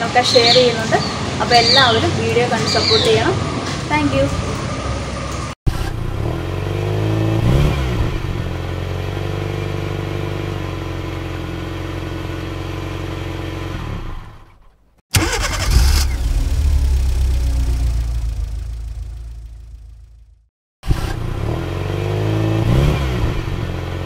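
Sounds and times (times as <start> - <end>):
car engine revving and idling: 5.7 - 14.6, 15.2 - 24.0
engine starting clatter: 15.1 - 16.7.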